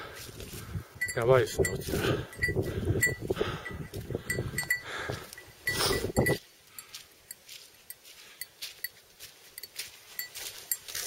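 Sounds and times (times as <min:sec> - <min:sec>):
small metal bell clinking: 0:01.0 - 0:06.4, 0:09.6 - 0:11.0
heavy breathing: 0:01.8 - 0:07.2
footsteps on wet leaves: 0:06.5 - 0:11.0.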